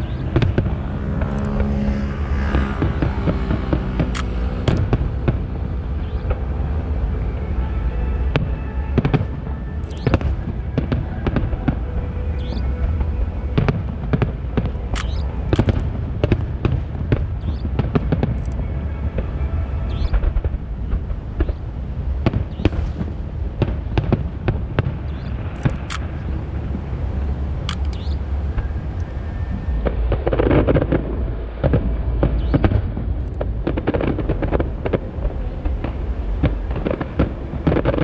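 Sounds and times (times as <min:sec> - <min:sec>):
continuous low rumble: 0:00.0 - 0:38.0
fireworks bursting: 0:00.0 - 0:38.0.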